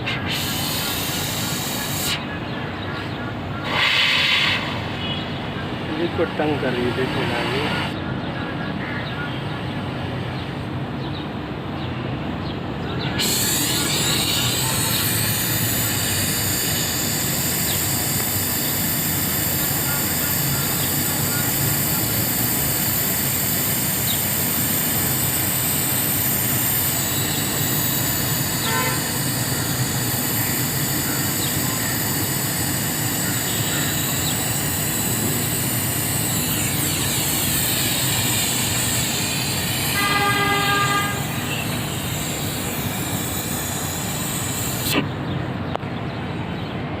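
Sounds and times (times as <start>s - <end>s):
steady street noise: 0.0s - 47.0s
vehicle horn honking: 28.5s - 29.4s, 39.9s - 41.6s.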